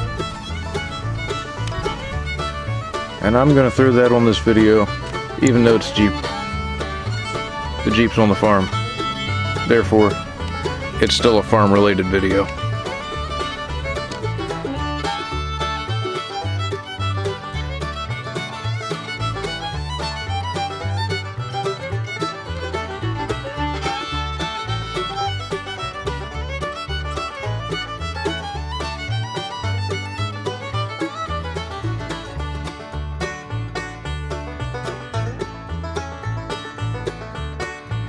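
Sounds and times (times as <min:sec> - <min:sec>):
bluegrass music with fiddle and banjo: 0:00.0 - 0:38.0.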